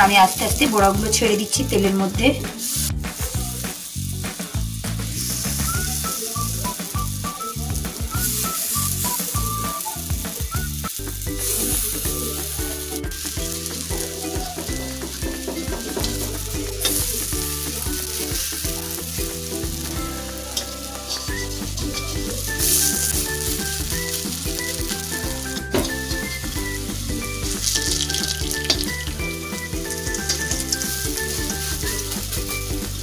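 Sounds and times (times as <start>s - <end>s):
food sizzling in hot oil: 0.0s - 33.0s
metal spatula scraping: 15.9s - 32.4s.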